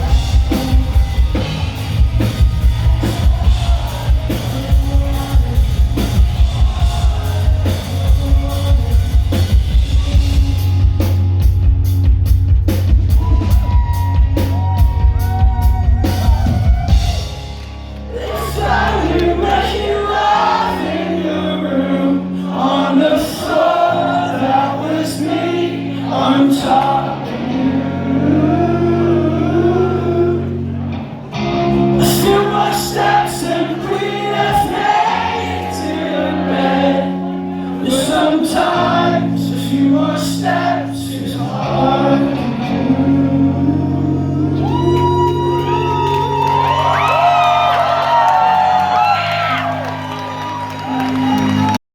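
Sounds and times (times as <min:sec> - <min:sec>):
person singing: 0:00.0 - 0:11.2, 0:18.1 - 0:47.6
drums: 0:00.0 - 0:21.1, 0:31.7 - 0:36.9, 0:37.9 - 0:51.8
heavy bass: 0:00.0 - 0:51.8.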